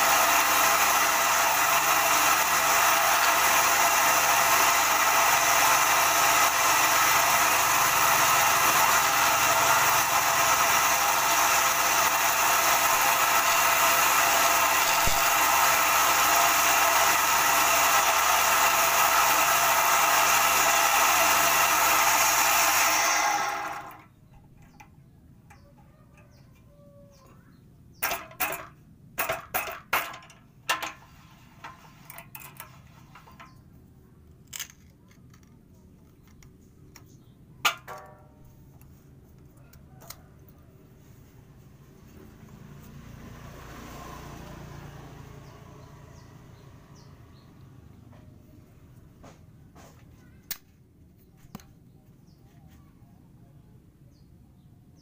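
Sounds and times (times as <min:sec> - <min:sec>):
wood lathe running: 0:00.0 - 0:24.0.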